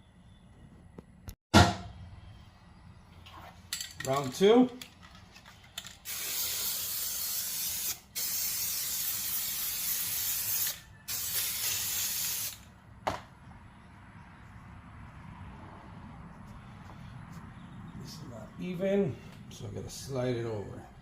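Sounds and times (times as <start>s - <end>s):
aerosol can hissing: 6.1s - 12.6s.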